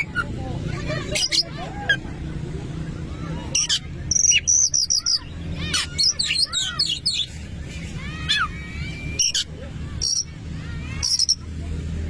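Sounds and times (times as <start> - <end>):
bird chirping and whistling: 3.6 - 7.3, 8.3 - 10.3, 11.0 - 11.4.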